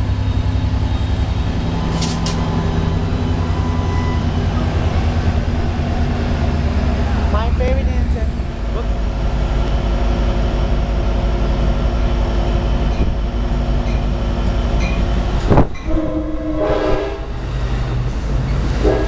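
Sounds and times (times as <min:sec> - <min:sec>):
train rumbling: 0:00.0 - 0:19.0
multi-tone train horn blast: 0:03.0 - 0:04.8, 0:15.7 - 0:17.4, 0:18.8 - 0:19.0.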